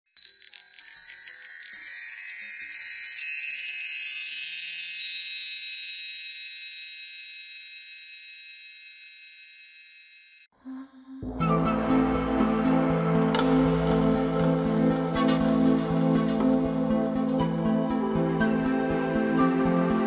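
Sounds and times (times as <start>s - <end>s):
high shimmering chimes: 0.1s - 10.6s.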